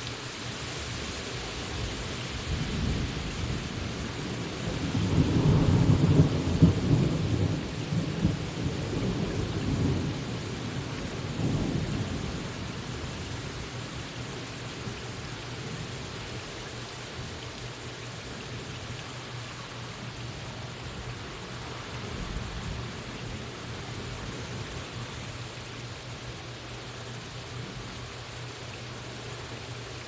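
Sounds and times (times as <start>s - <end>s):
steady rain: 0.0s - 30.0s
rolling thunder: 4.6s - 13.3s.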